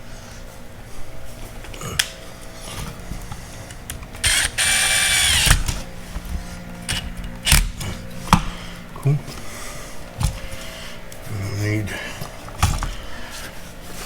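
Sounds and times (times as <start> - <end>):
power drill spinning: 3.7 - 6.0.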